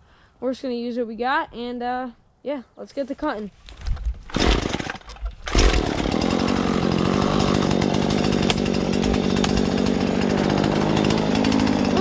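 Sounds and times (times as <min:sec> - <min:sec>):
chainsaw running: 0:04.3 - 0:12.0.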